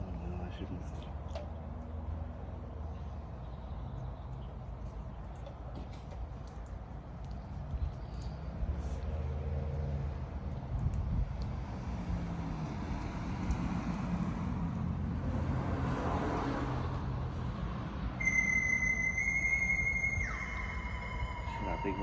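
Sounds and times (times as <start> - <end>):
traffic rumble: 0.0 - 22.0
vehicle passing: 7.6 - 22.0
steady high tone: 18.2 - 22.0.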